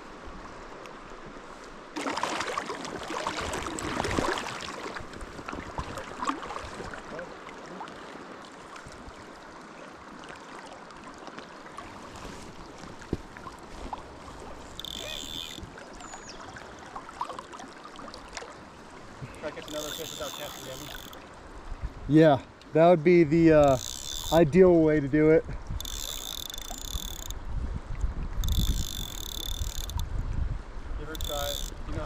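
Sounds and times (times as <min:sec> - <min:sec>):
river water running: 0:00.0 - 0:32.0
water splashing: 0:02.0 - 0:21.4.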